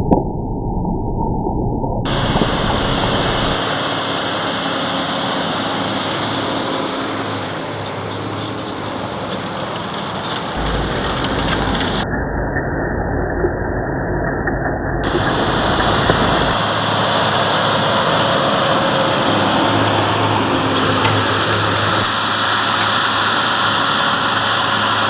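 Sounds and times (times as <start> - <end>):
tractor diesel engine under load: 2.1 - 12.0, 15.0 - 25.0.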